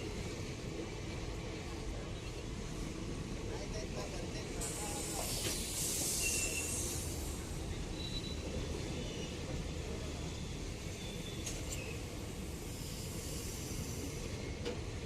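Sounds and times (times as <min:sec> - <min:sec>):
train wheels rumbling on rails: 0:00.0 - 0:15.0
brief hiss: 0:04.6 - 0:07.4.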